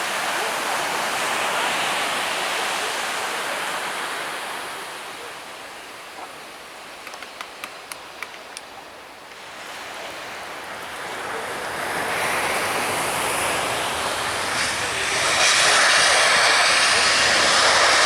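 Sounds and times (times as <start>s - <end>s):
surf washing onto beach: 0.0s - 8.0s, 9.2s - 18.0s
faint clicks: 7.0s - 8.8s.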